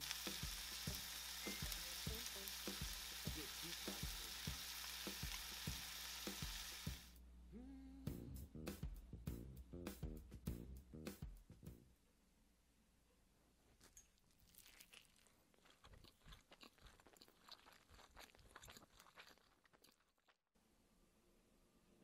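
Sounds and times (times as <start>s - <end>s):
faint crunching and chewing: 13.6s - 20.5s.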